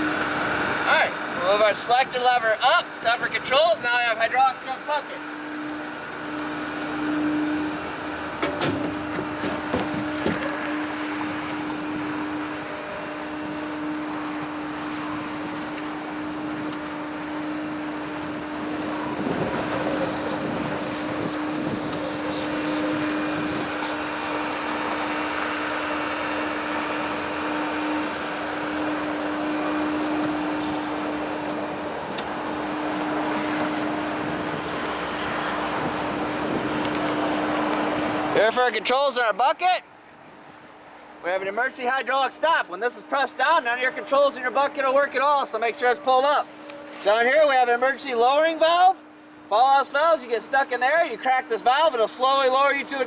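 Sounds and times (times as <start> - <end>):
truck engine running: 0.0 - 38.8
hydraulic pump hum: 0.0 - 39.0.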